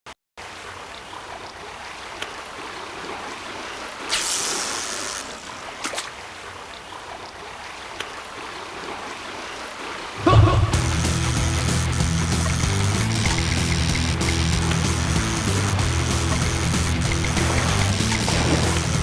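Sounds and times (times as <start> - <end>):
rushing water surge: 0.4 - 10.8, 16.6 - 19.0
wind: 0.4 - 10.8
sea water: 0.4 - 19.0.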